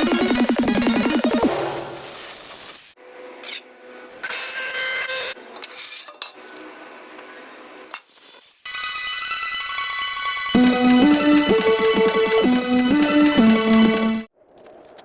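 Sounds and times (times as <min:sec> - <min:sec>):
arc welding crackling hiss: 0:02.0 - 0:03.0.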